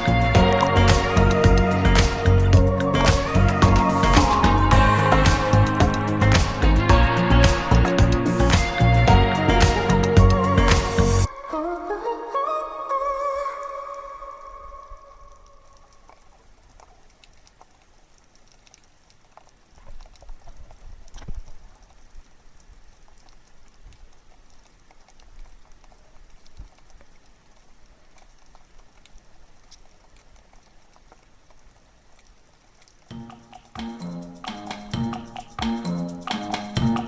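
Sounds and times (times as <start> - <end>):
faint clicking and crackling: 13.9 - 37.0.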